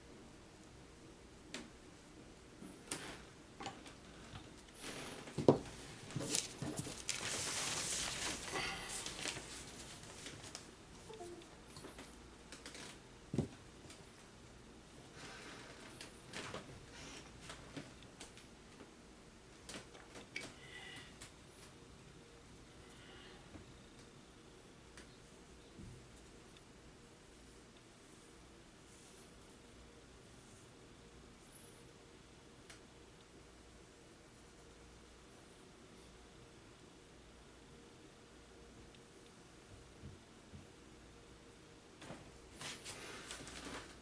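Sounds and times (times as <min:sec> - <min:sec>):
soft rustling of paper: 0:03.8 - 0:11.1, 0:42.0 - 0:44.0.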